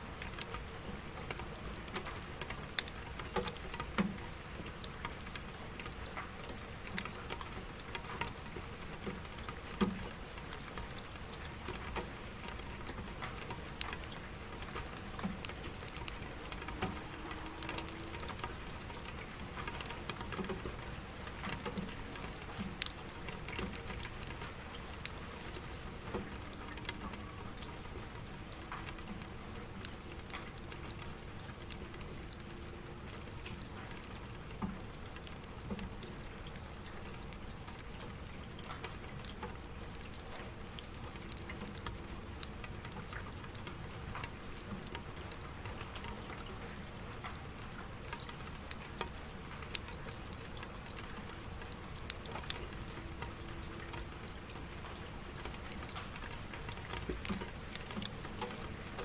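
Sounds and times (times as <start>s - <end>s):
raindrops ticking and patting: 0.0s - 59.0s
steady rain: 0.0s - 59.0s.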